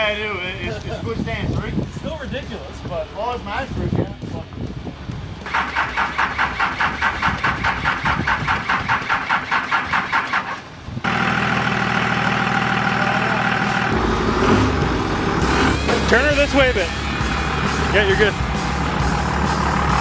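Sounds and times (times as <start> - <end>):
diesel engine idling: 5.0 - 20.0
engine starter cranking: 5.4 - 20.0
deep rumble: 13.5 - 20.0.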